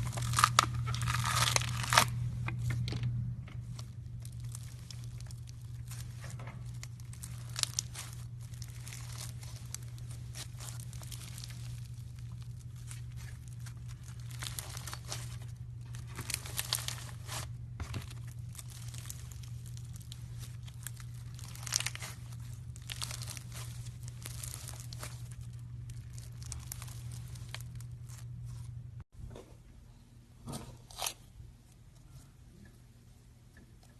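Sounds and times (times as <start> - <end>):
slime crackling and popping: 0.0 - 2.2, 3.7 - 28.3
steady low hum: 0.0 - 33.9.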